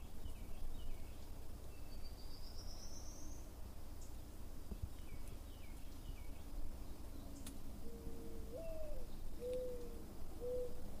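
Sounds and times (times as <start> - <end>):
bird hooting: 7.8 - 10.8.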